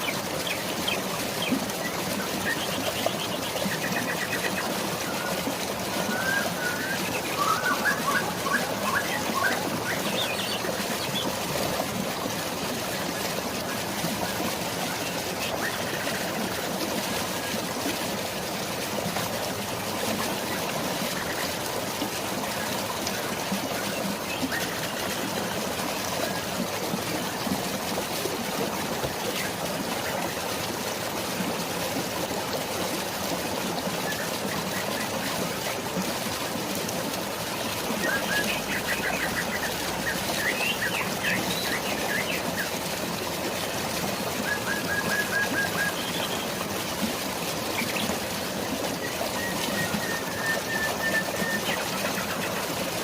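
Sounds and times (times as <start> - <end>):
flowing water: 0.0 - 53.0
birds chirping: 6.0 - 11.4.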